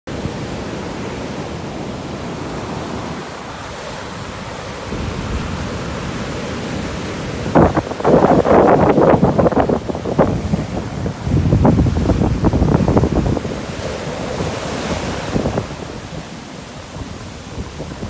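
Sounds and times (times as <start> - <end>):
ocean surf rushing: 0.1 - 18.0
wind buffeting microphone: 4.0 - 18.0.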